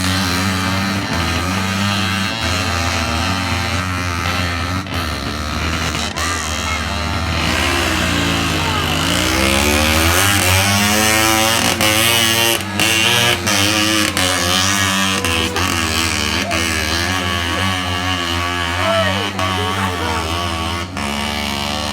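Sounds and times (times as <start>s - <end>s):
motorcycle engine running: 0.0s - 21.9s
person speaking: 10.7s - 20.6s.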